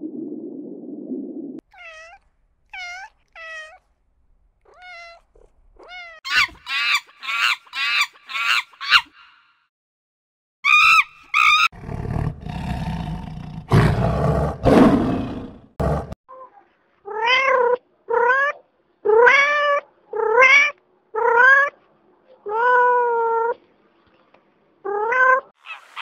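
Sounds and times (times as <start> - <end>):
cat meowing: 1.6 - 3.8, 4.7 - 6.6
macaque calls: 6.3 - 9.4, 25.6 - 26.0
lion roaring: 11.8 - 16.2.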